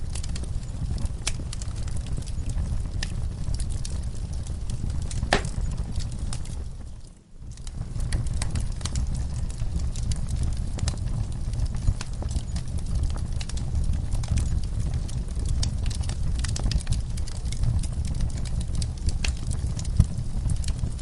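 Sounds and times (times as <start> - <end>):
crackling fire with pops: 0.0 - 21.0
hooves knocking on floor: 5.3 - 5.6.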